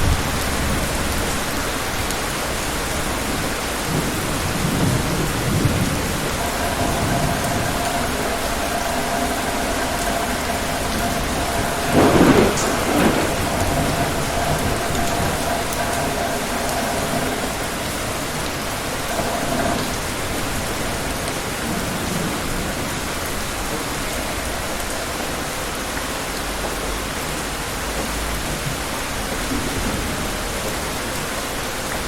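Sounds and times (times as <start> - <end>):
low rolling thunder: 0.0 - 25.5
steady rain falling: 0.0 - 32.0
thunderclap with sharp crack: 3.9 - 18.2.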